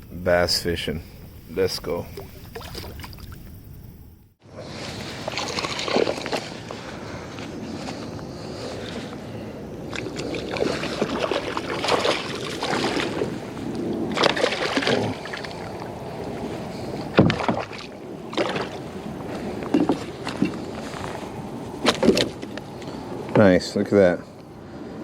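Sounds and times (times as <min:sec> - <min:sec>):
water splashing around kayak: 0:02.0 - 0:03.7, 0:04.4 - 0:07.0, 0:08.4 - 0:23.2.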